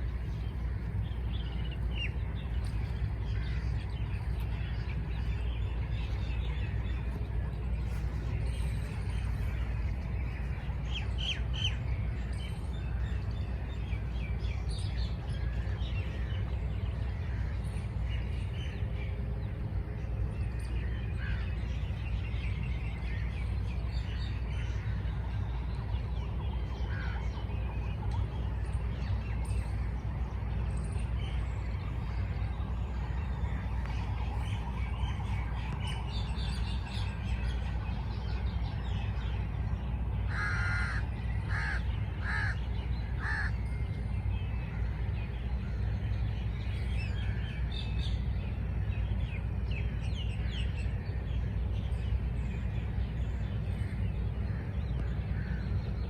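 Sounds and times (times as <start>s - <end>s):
birds chirping and squawking: 40.2s - 44.1s.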